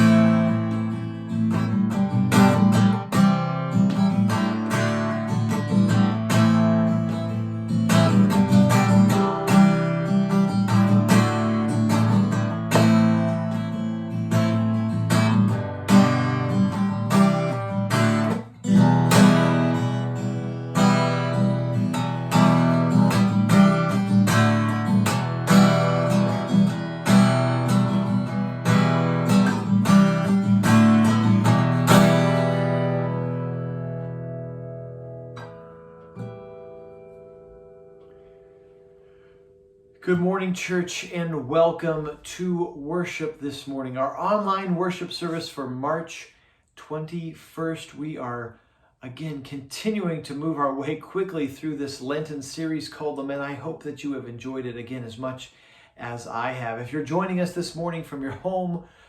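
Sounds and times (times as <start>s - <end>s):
strummed acoustic guitar music: 0.0s - 46.0s.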